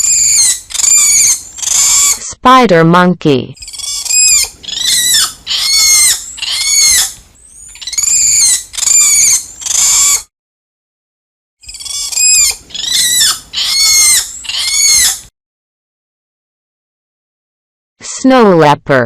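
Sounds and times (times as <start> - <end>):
monkey high-pitched calls: 0.0 - 2.2, 3.6 - 10.3, 11.6 - 15.3.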